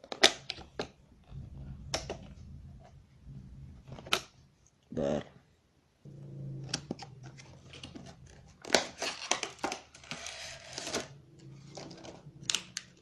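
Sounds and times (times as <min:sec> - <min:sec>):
low hum: 0:01.2 - 0:04.7, 0:06.0 - 0:08.5
packaging crinkling and rustling: 0:06.9 - 0:13.0.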